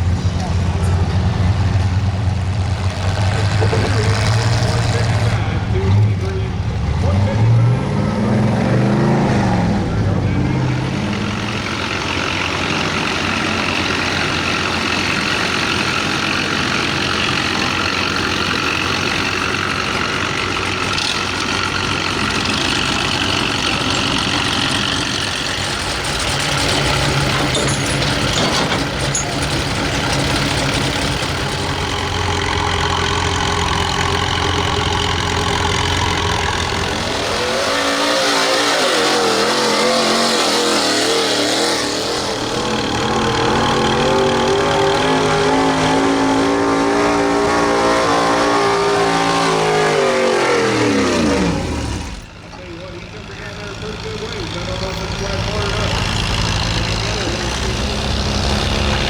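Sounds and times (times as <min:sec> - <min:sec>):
truck engine running loud: 0:00.0 - 0:59.0.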